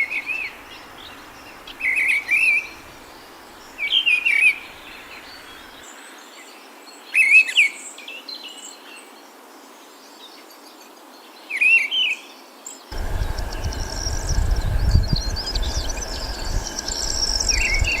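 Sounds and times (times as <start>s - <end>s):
high insect drone: 13.0s - 18.0s
low rumble: 13.0s - 18.0s
songbirds chirping: 13.0s - 18.0s.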